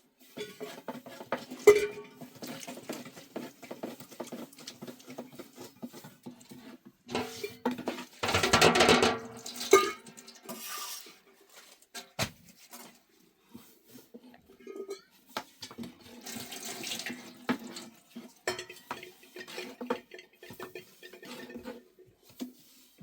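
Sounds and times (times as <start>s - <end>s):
dishes and utensils clattering: 0.2s - 11.2s, 14.5s - 22.4s.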